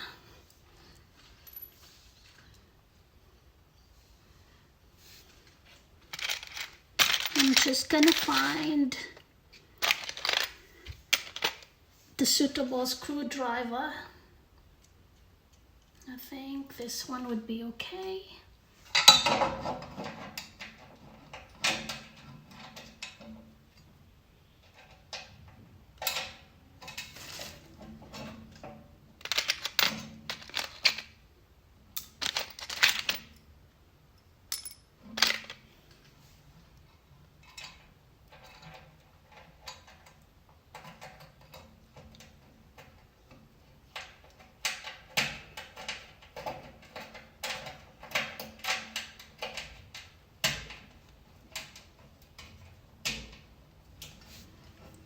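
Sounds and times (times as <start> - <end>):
metal parts clinking: 1.4 - 1.8, 6.0 - 8.8, 9.8 - 11.7, 29.2 - 31.2, 32.0 - 33.5, 34.5 - 35.6.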